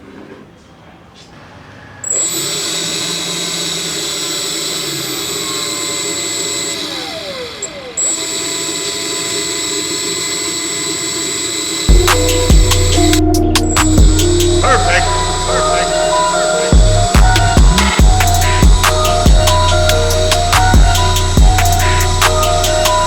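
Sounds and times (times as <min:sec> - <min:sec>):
blower motor high whine: 0:02.0 - 0:23.0.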